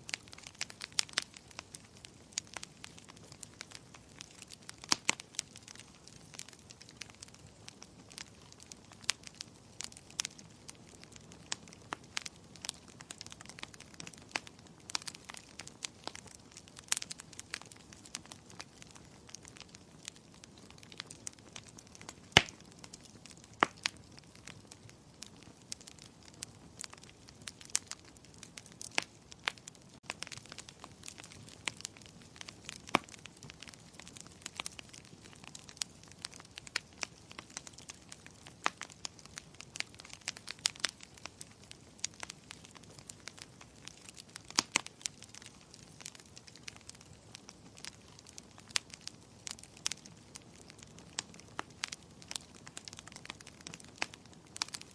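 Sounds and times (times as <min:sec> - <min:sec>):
fire crackling: 0:00.0 - 0:54.9.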